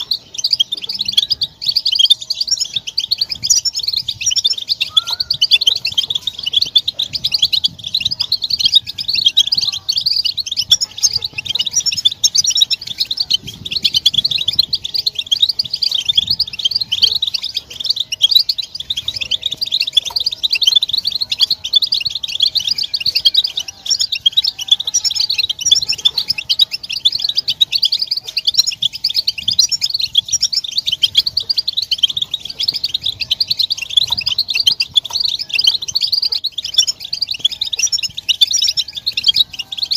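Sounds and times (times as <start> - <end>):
finches twittering chorus: 0.0 - 39.9.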